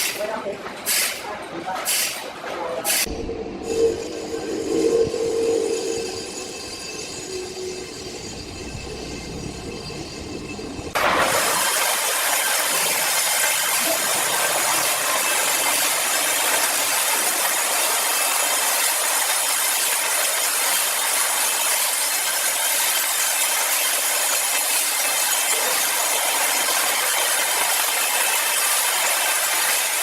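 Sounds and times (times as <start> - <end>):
power saw cutting wood: 11.0 - 30.0.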